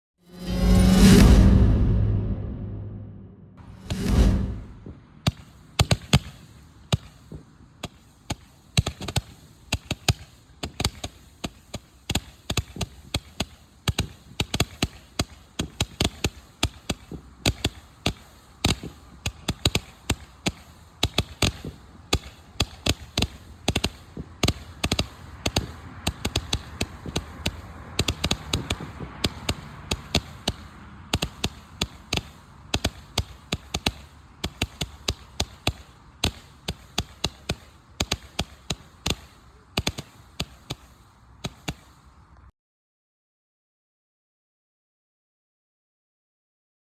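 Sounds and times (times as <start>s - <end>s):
firework pops and cracks: 4.0s - 42.4s
faint hiss: 5.2s - 42.5s.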